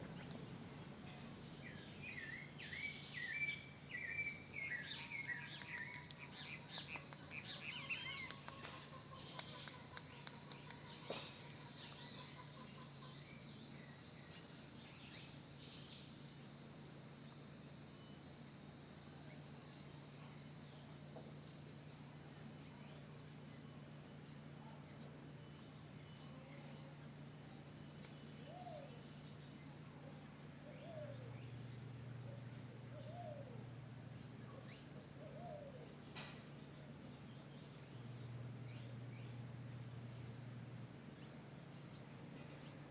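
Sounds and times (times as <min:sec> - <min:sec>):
bird chirps and tweets: 0:00.0 - 0:42.9
steady low hum: 0:00.0 - 0:42.9.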